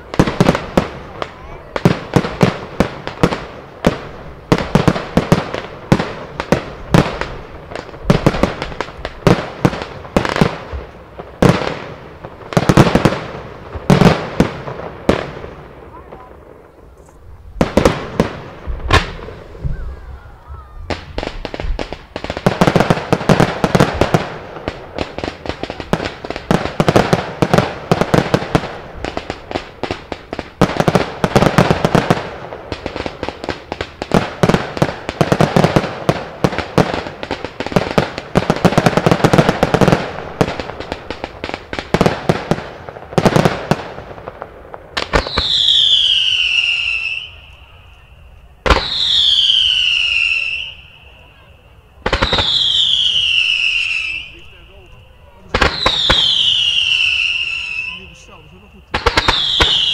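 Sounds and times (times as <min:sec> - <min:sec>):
firework bursts and crackling: 0:00.0 - 0:59.9
firework whistle falling in pitch: 0:18.9 - 0:21.2, 0:45.2 - 0:59.9.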